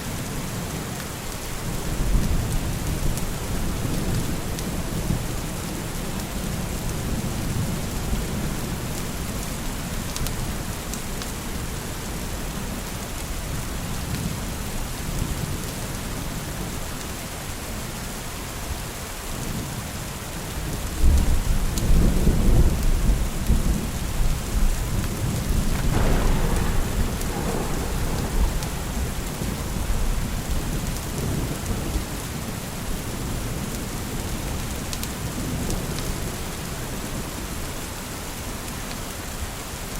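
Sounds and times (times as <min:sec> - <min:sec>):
heavy rain: 0:00.0 - 0:39.9
thunder rumbling: 0:21.0 - 0:32.4.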